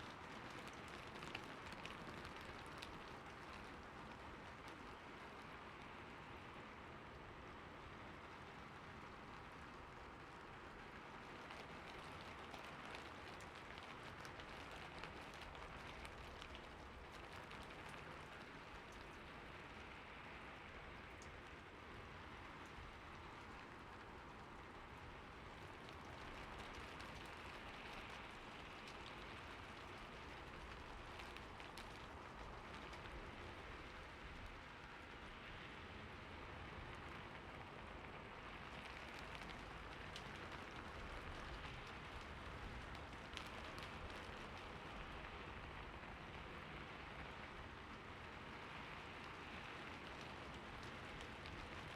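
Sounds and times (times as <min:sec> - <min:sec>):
steady rain pattering: 0:00.0 - 0:51.9.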